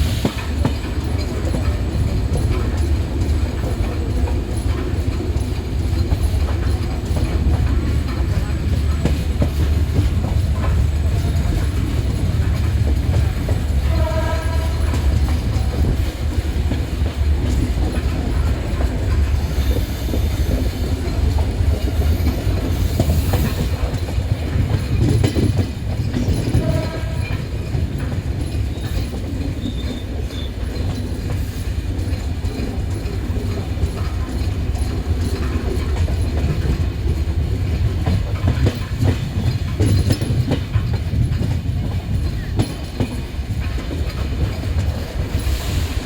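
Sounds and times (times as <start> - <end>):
train rumbling: 0.0 - 46.0
wheels clattering over rail joints: 0.0 - 46.0
train horn: 13.8 - 15.4, 26.5 - 27.5.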